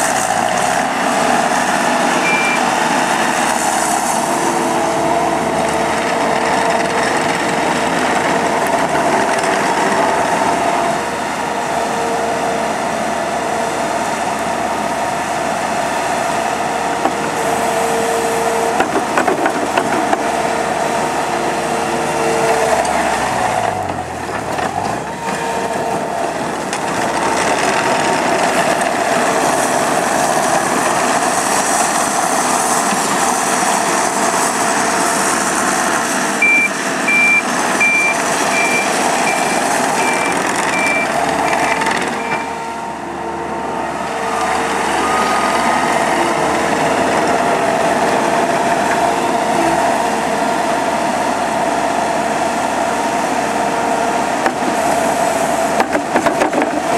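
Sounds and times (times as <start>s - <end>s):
diesel engine running: 0.0s - 56.9s
backup alarm beeping: 2.2s - 2.7s, 36.4s - 42.7s.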